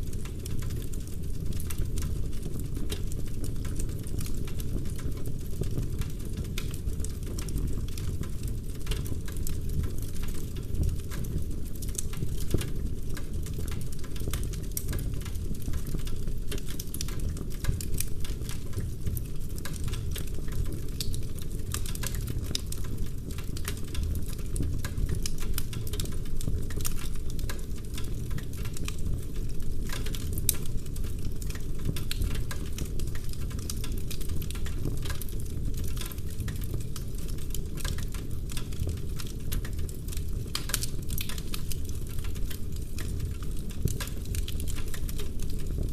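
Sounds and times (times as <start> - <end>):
low rumble of flames: 0.0 - 45.9
burning logs popping: 10.4 - 45.9.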